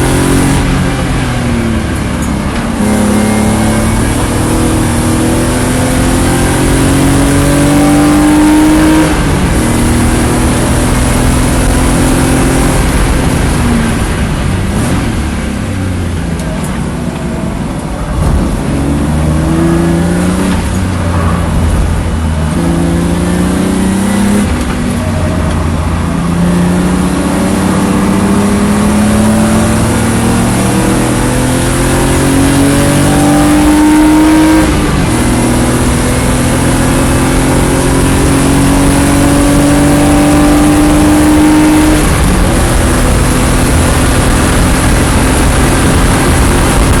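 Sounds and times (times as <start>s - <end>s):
race car engine at full throttle: 0.0s - 47.0s.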